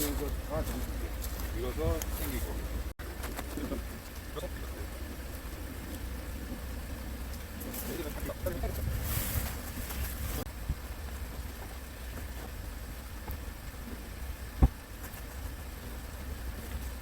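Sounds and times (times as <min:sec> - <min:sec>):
steady low rumble: 0:00.0 - 0:17.0
tent fabric rustling: 0:08.6 - 0:10.5.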